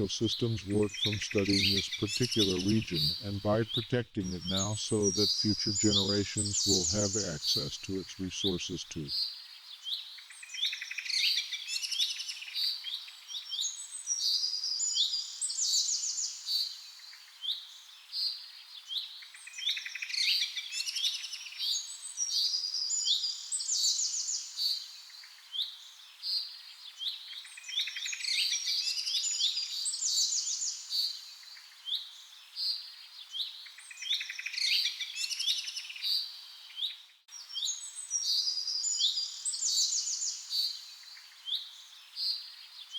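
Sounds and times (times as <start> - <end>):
birds chirping and trilling: 0.0 - 9.9.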